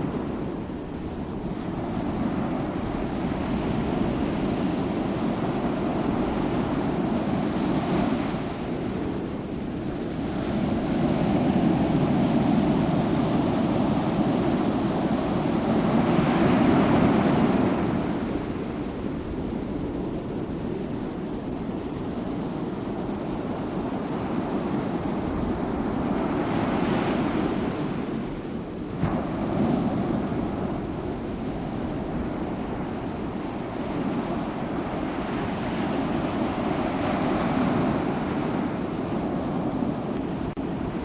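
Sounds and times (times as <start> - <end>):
ocean waves breaking: 0.0 - 41.0.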